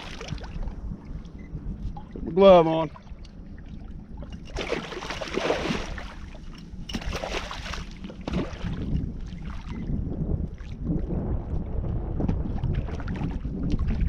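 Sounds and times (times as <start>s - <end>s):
wind rumble on microphone: 0.0s - 14.0s
fish splashing in water: 4.6s - 6.3s, 6.9s - 9.8s.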